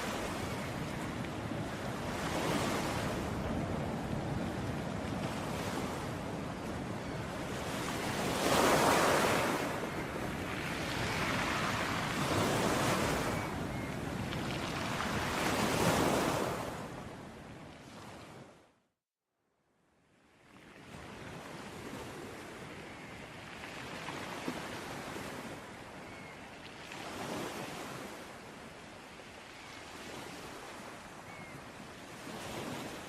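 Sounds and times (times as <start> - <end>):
sea waves surging: 7.3 - 16.8.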